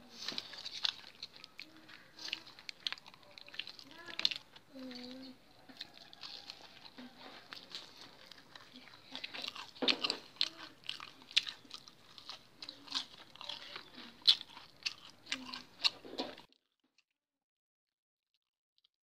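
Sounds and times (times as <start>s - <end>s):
crunching fried chicken: 0.0s - 17.1s.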